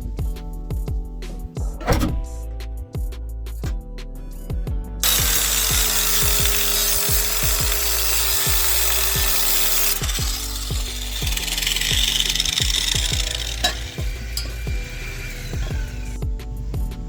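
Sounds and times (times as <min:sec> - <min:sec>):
music with booming bass beat: 0:00.0 - 0:17.0
power tool rasping with whine: 0:05.0 - 0:16.2.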